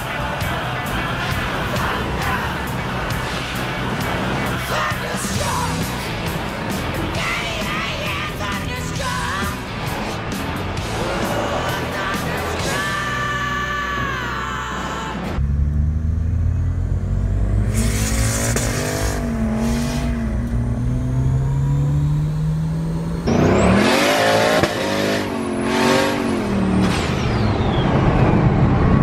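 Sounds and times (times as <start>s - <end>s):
car engine revving under load: 0.0s - 7.2s, 9.5s - 12.6s, 15.3s - 29.0s
high turbo whistle: 17.6s - 20.5s.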